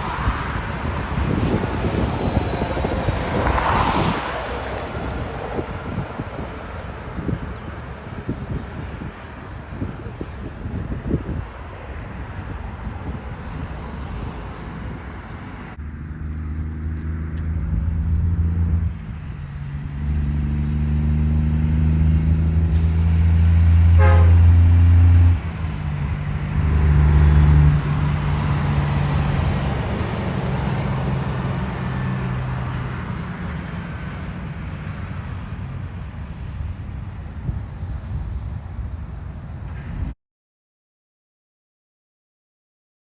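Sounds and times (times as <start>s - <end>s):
train rumble: 0.0s - 15.8s, 22.6s - 40.2s
locomotive horn blasts: 23.9s - 25.0s.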